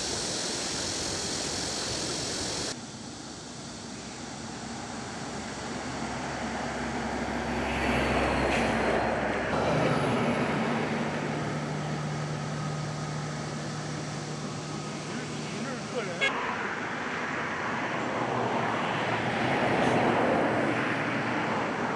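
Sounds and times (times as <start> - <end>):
vehicle engine running: 9.2 - 16.3.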